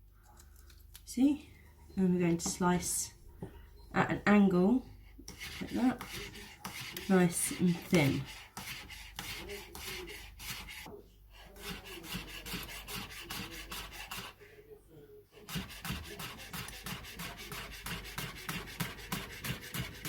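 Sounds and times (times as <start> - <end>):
knife slicing on chopping board: 11.6 - 14.3, 15.5 - 20.0.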